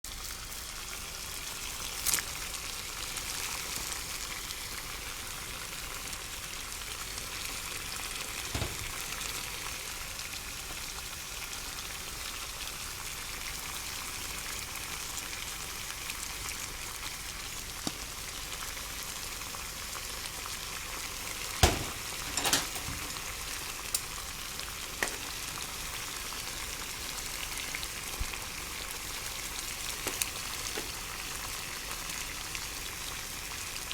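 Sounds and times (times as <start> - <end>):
water boiling in a pot: 0.1 - 33.9
sharp knocks: 8.6 - 9.0, 21.6 - 23.2.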